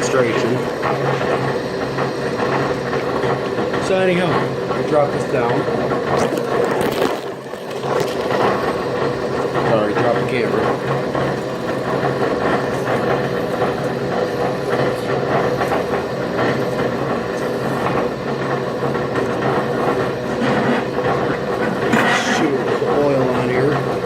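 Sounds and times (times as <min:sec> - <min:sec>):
motor and gearbox hum: 0:00.0 - 0:24.0
blade scraping metal: 0:21.9 - 0:22.5.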